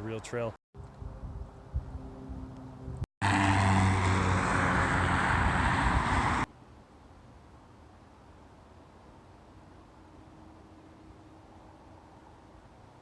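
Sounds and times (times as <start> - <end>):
road traffic rush: 0.1 - 6.5.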